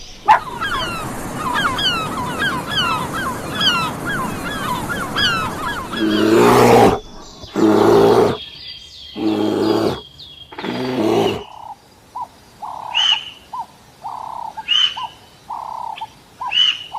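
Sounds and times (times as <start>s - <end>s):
repeating bird call: 0.0s - 8.4s
high bird chirping: 0.0s - 11.4s
rough animal roars: 5.0s - 8.4s, 9.2s - 10.0s, 10.6s - 11.4s.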